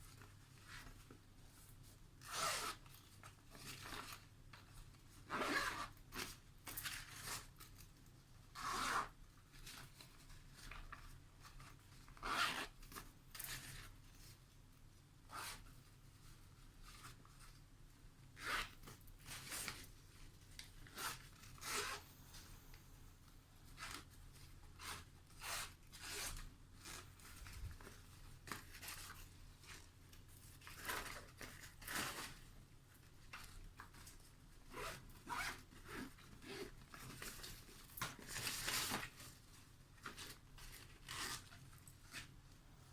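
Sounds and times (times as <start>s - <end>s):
zipper pulls: 2.2s - 2.8s, 5.3s - 6.0s, 12.2s - 12.8s, 15.3s - 15.6s, 20.8s - 23.2s, 34.8s - 36.6s.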